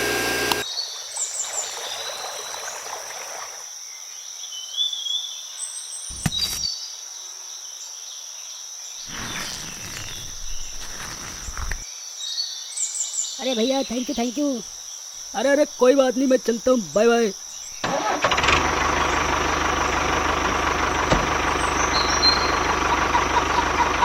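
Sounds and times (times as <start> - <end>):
insect chorus: 0.6 - 24.0
bird chirps: 21.4 - 24.0.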